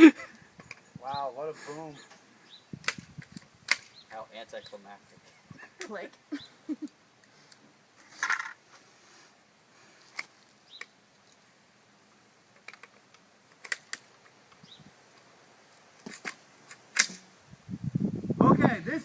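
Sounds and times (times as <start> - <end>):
small clicks and light knocks: 12.5 - 17.2.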